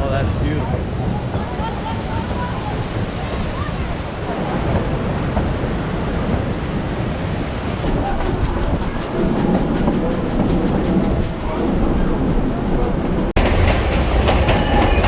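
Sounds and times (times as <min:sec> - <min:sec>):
train wheels rattling on rails: 0:13.3 - 0:15.0.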